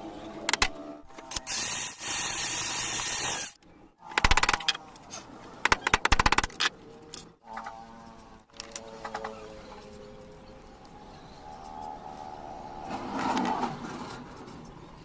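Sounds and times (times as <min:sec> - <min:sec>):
sharp clicks: 0:00.5 - 0:01.5, 0:04.1 - 0:04.8, 0:05.6 - 0:07.3
rapid clicking: 0:05.6 - 0:06.6.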